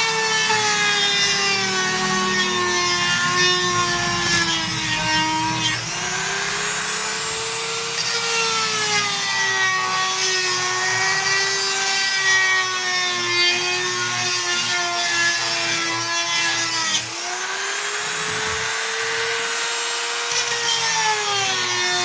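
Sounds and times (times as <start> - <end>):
power drill whining: 0.0 - 22.0.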